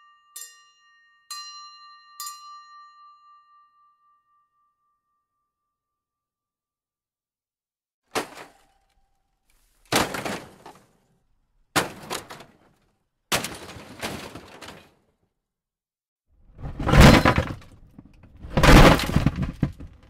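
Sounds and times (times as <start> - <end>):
clattering of breaking objects: 8.1 - 8.9, 9.8 - 11.0, 11.8 - 15.0, 16.6 - 20.0
crashing impacts: 8.1 - 8.9, 9.8 - 11.0, 11.7 - 15.0, 16.6 - 20.0.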